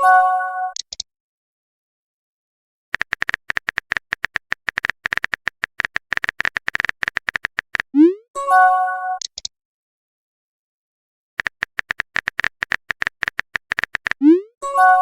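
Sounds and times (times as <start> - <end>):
keyboard tapping clicks: 3.0 - 7.9, 11.4 - 14.2.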